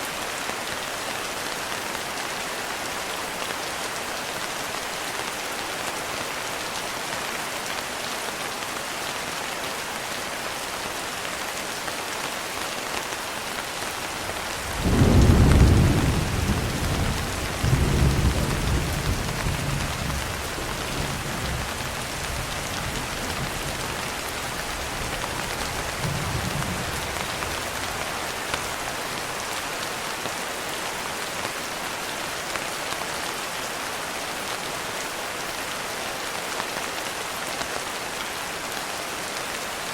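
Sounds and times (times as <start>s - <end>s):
heavy rain falling: 0.0s - 39.9s
thunder rumbling: 14.6s - 23.6s.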